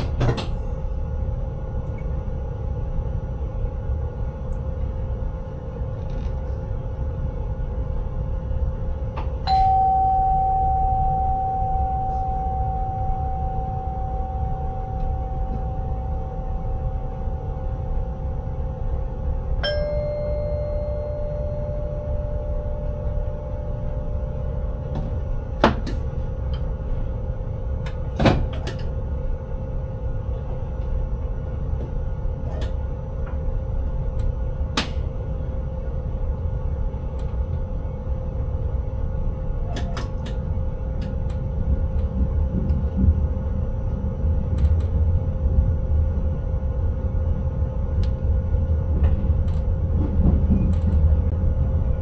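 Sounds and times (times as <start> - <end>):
train rumble and hum: 0.0 - 52.0
ringing ding: 9.5 - 17.4, 19.6 - 23.7.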